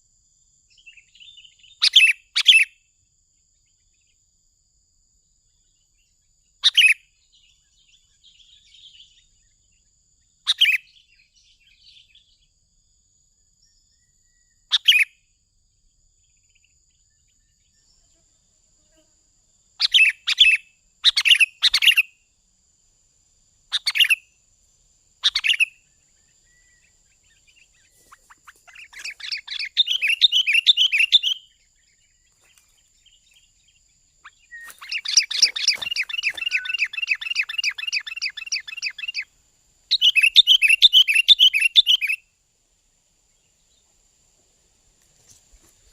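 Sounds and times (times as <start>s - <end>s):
bulbul calling: 1.2s - 2.7s, 10.5s - 11.0s, 19.8s - 22.1s, 23.7s - 24.3s, 25.2s - 31.6s, 34.2s - 39.3s, 39.9s - 42.2s.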